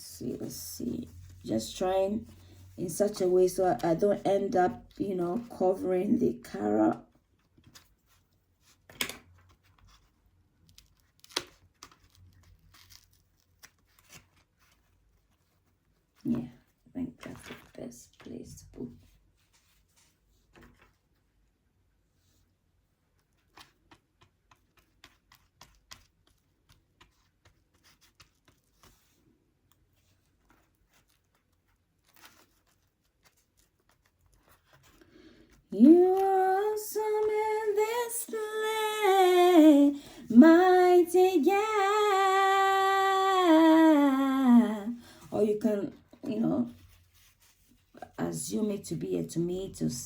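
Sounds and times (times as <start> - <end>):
paper rustling: 6.5 - 18.3, 22.2 - 38.1, 46.0 - 48.2
paper crinkling: 6.6 - 18.3, 23.0 - 39.5.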